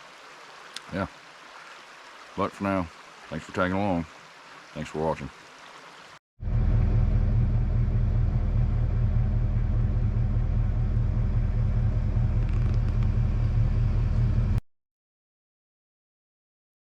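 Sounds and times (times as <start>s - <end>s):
car engine and road rumble: 6.4s - 14.6s.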